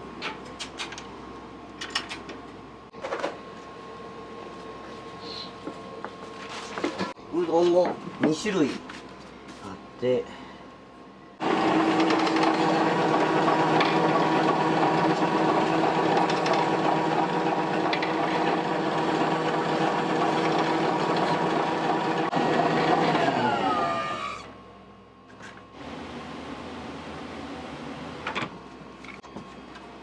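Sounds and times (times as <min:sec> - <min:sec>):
kitchen machine motor running: 0:11.4 - 0:24.6.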